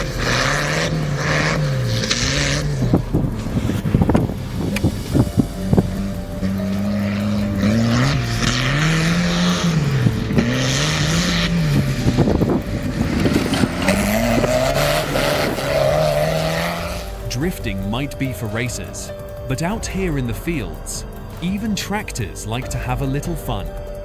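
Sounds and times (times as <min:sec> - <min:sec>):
tractor engine revving: 0:00.0 - 0:24.0.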